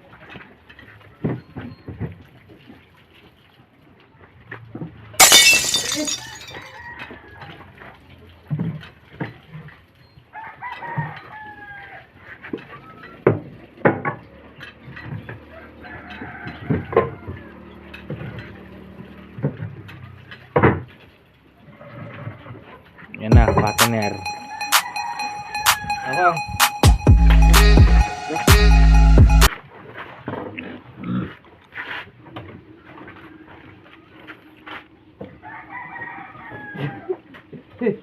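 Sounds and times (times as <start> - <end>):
rooster crowing: 10.4 - 12.1, 15.6 - 17.6, 24.4 - 26.0, 35.4 - 37.2.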